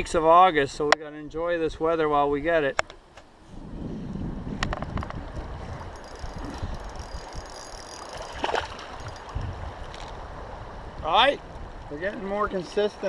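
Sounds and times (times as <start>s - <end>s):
wind on microphone: 3.4s - 12.5s
river water flowing: 5.3s - 11.8s.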